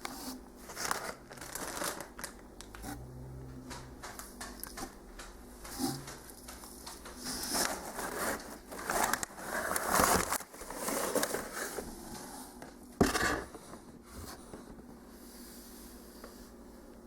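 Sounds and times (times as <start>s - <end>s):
packaging crinkling and scraping: 0.0s - 5.0s, 5.6s - 14.4s
sharp packaging crackle: 0.6s - 3.0s, 5.8s - 11.8s.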